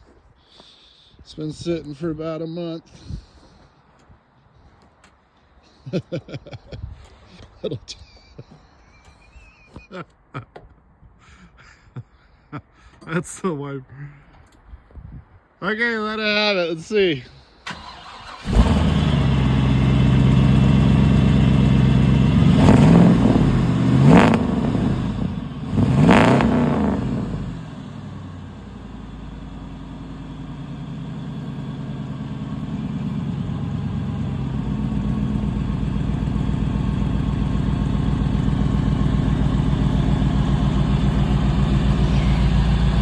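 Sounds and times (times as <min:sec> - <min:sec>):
car engine revving and idling: 0:18.0 - 0:43.0.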